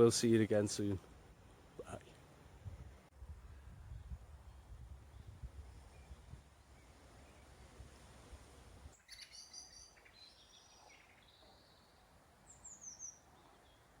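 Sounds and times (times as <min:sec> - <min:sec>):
faint birdsong chirps: 0:00.0 - 0:14.0
wind rumble on microphone: 0:02.6 - 0:09.0.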